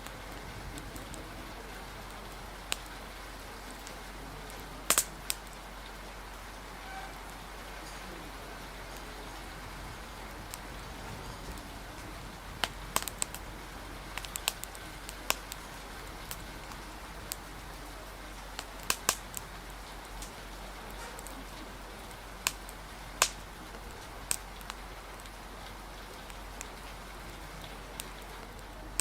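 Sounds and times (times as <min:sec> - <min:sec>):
rain hiss: 0:00.0 - 0:29.0
wood fire crackling: 0:00.0 - 0:29.0
murmur of conversation: 0:00.2 - 0:06.8.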